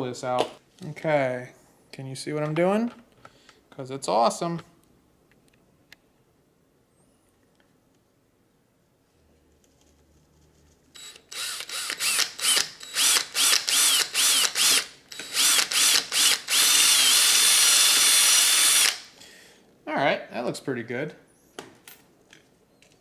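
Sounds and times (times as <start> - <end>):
electric drill spinning: 11.0 - 19.2.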